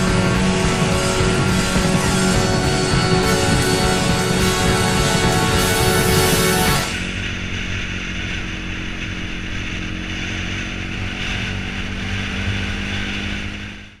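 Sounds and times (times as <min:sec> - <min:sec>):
motorcycle engine running: 0:00.0 - 0:14.0
wind and road noise: 0:00.0 - 0:14.0.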